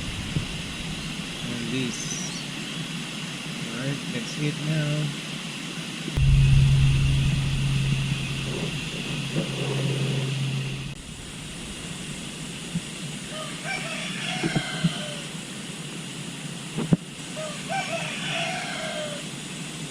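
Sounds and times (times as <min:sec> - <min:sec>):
low rumble: 0:06.2 - 0:13.3
steady low hum: 0:06.2 - 0:13.3
rooster crowing: 0:13.3 - 0:15.3, 0:17.4 - 0:19.3.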